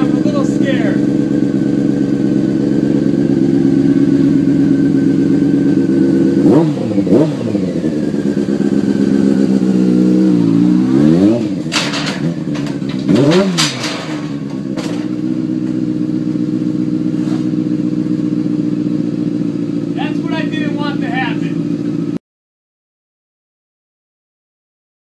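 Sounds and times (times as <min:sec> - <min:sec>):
motorcycle engine revving and idling: 0:00.0 - 0:22.2
sharp knocks and clatter: 0:11.2 - 0:15.9.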